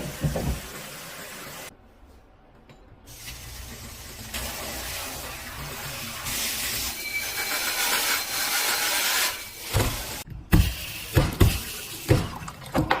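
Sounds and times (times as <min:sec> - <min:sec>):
water running from faucet: 0:00.0 - 0:01.7, 0:03.1 - 0:10.2.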